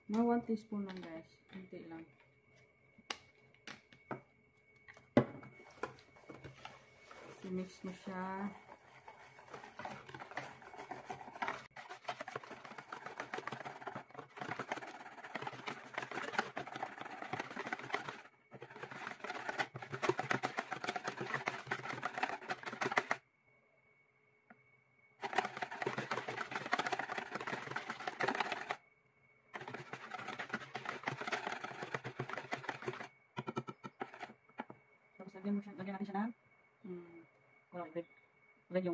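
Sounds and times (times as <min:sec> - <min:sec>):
wire whisk beating batter in bowl: 0:08.6 - 0:23.2, 0:25.2 - 0:28.8, 0:29.6 - 0:34.4.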